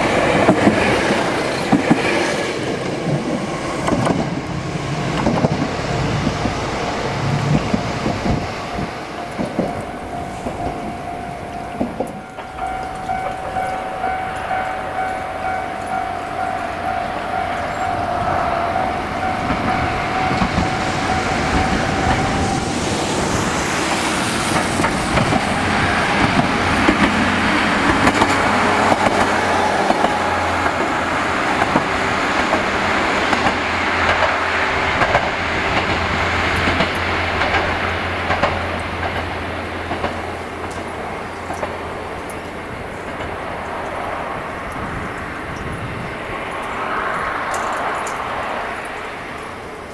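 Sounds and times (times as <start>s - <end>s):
train wheels clicking over rail joints: 0.0s - 49.9s
steady high tone: 5.8s - 31.6s.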